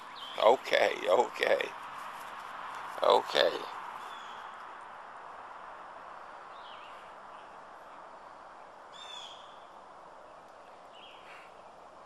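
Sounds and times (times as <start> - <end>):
bird chirping: 0.0 - 1.8, 2.7 - 4.6, 6.5 - 11.6
steady outdoor hiss: 0.0 - 12.0.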